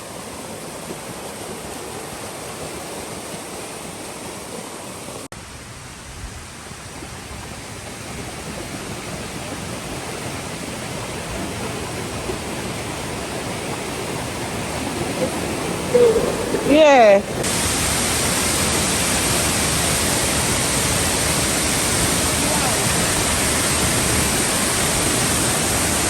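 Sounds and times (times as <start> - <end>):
waterfall rushing: 6.5 - 26.0.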